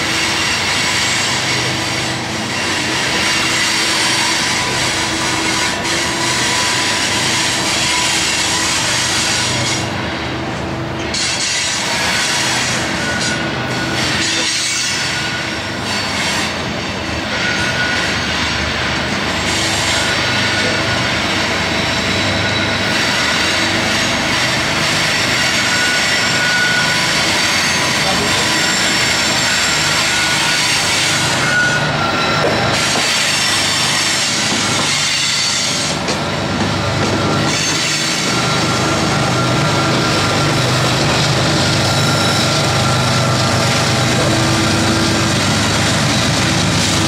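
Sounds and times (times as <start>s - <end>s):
high wheel squeal: 0.0s - 10.4s, 11.0s - 47.0s
freight train wheels rumbling: 0.0s - 47.0s.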